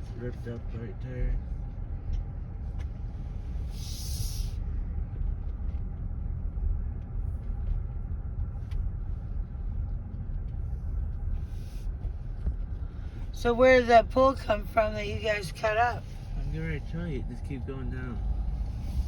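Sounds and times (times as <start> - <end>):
engine and road rumble: 0.0 - 19.0
short hisses: 3.7 - 4.6.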